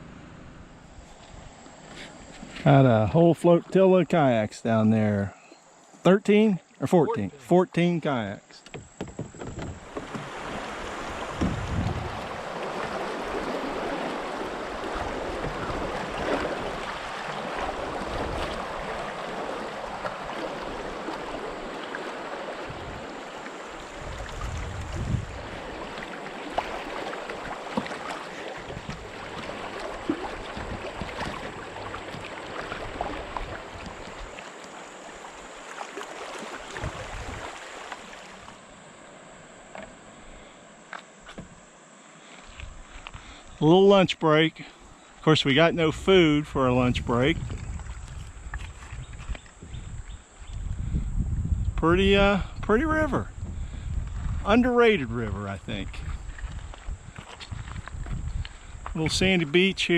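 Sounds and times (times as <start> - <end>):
river water splashing: 6.6 - 49.6
small knocks: 8.6 - 10.3
wind gusts on microphone: 8.8 - 27.6, 36.7 - 37.6, 45.6 - 59.9.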